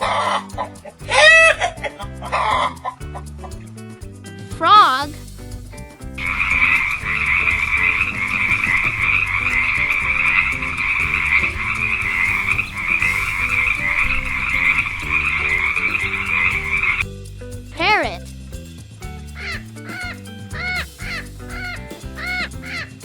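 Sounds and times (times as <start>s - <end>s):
soft background tune: 0.0s - 18.5s
frogs croaking: 6.3s - 17.0s.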